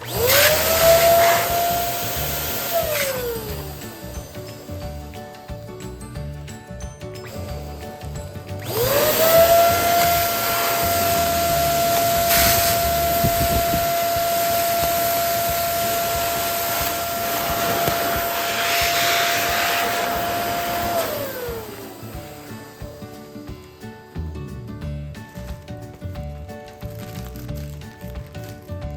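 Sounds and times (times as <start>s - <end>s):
electric balloon pump motor: 0.0s - 24.2s
rushing air: 0.1s - 4.9s, 8.7s - 24.1s.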